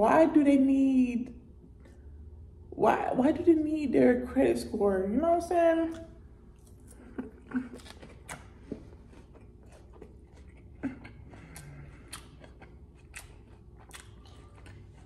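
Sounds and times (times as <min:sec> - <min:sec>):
person chewing crisp lettuce: 0:05.9 - 0:15.0.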